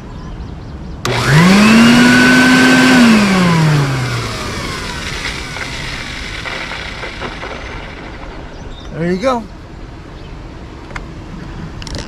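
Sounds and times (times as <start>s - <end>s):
shop vacuum motor winding down: 1.0s - 8.8s.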